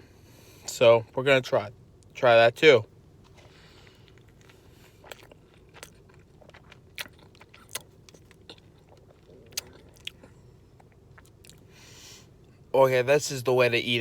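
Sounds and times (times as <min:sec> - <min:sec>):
person chewing food: 0:03.2 - 0:12.6.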